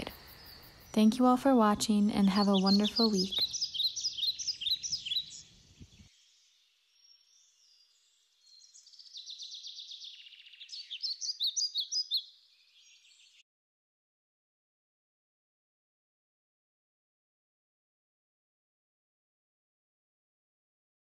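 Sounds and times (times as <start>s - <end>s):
buzzy bird trill: 0.0s - 5.5s, 8.4s - 13.4s
small birds chirping: 0.0s - 13.4s.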